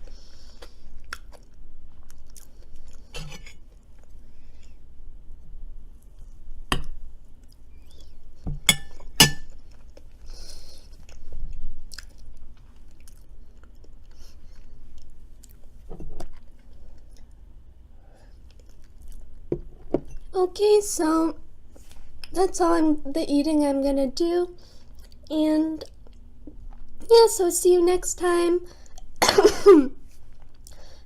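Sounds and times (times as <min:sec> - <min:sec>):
chewing and crunching food: 0:00.1 - 0:04.8, 0:09.0 - 0:17.4, 0:18.3 - 0:19.5.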